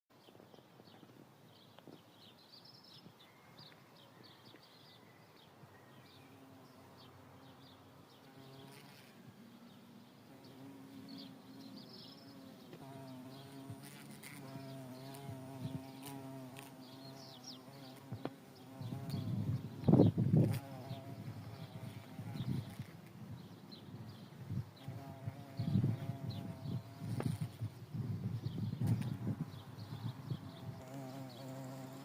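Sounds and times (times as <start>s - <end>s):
bee buzzing in flight: 8.3s - 9.3s, 10.3s - 22.9s, 24.8s - 29.5s, 30.1s - 32.0s.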